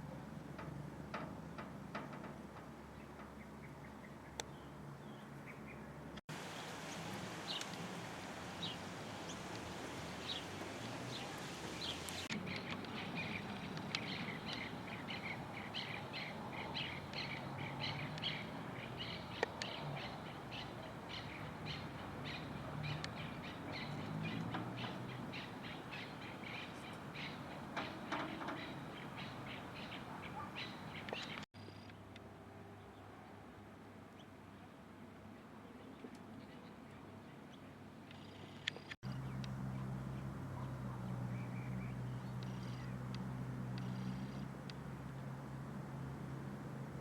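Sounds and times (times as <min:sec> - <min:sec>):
birds chirping: 0:02.9 - 0:31.9, 0:37.5 - 0:45.4
background hiss: 0:06.3 - 0:31.4.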